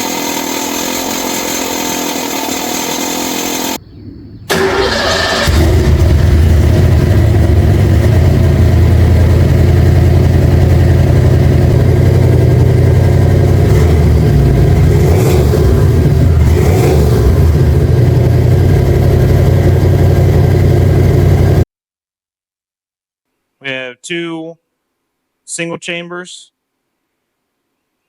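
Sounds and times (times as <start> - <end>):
loud vee eight engine running: 0.0 - 3.9, 4.5 - 21.6.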